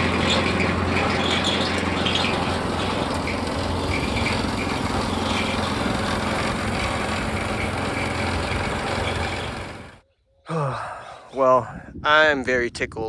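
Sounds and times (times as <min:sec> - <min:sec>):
small gasoline engine running: 0:00.0 - 0:10.0.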